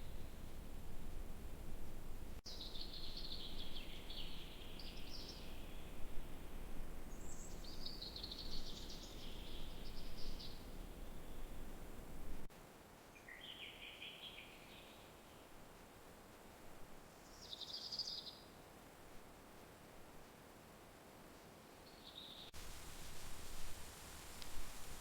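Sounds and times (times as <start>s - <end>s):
low outdoor rumble: 0.0s - 2.4s, 8.8s - 12.5s
songbird singing: 0.0s - 12.5s, 13.2s - 15.5s, 17.2s - 18.5s, 21.8s - 22.6s.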